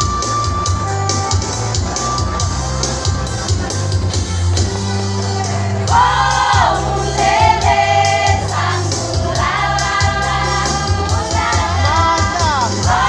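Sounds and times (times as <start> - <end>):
bass line and steady beat: 0.0 - 13.0
choir singing: 5.9 - 13.0.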